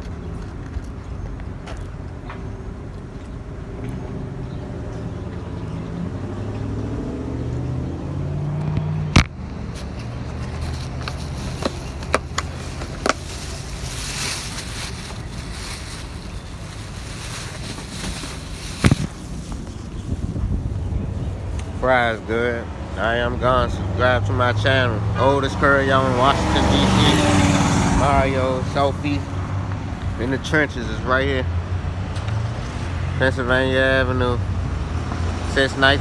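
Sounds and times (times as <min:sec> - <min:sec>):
motor vehicle engine running: 0:08.1 - 0:23.6, 0:25.5 - 0:30.3.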